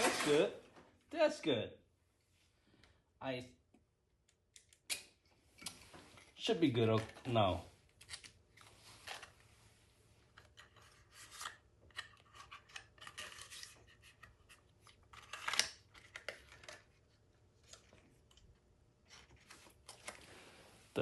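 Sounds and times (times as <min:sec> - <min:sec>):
tools scraping metal parts: 0:00.0 - 0:00.5.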